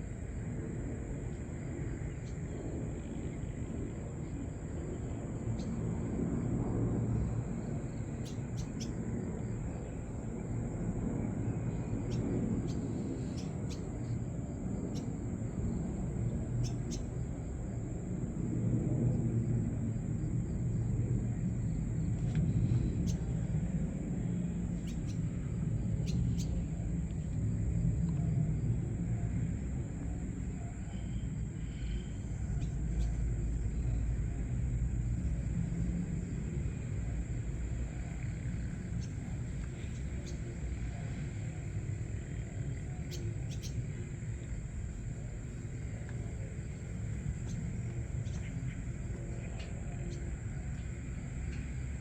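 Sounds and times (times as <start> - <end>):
small birds chirping: 11.7 - 14.2, 16.6 - 17.1, 22.5 - 23.5, 24.8 - 25.4, 26.0 - 26.7, 37.8 - 41.6, 42.3 - 44.6, 47.1 - 50.4.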